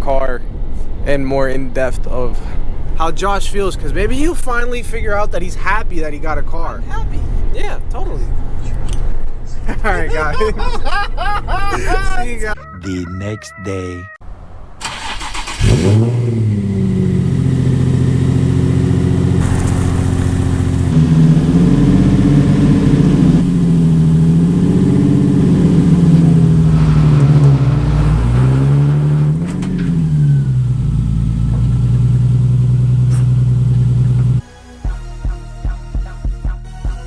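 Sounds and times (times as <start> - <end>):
car engine revving: 14.2 - 34.4.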